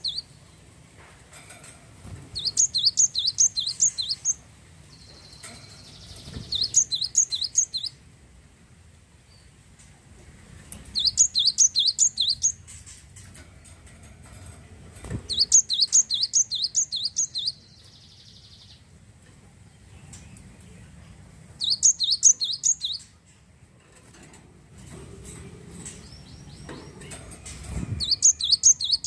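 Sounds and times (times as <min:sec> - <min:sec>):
bird chirping: 0:00.0 - 0:00.7, 0:02.3 - 0:08.0, 0:10.8 - 0:13.0, 0:15.2 - 0:18.9, 0:21.6 - 0:23.2, 0:25.8 - 0:29.0.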